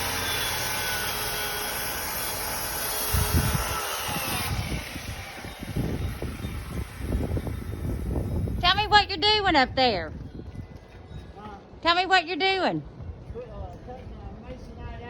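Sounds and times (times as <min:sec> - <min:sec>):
power tool whining: 0:00.0 - 0:08.6.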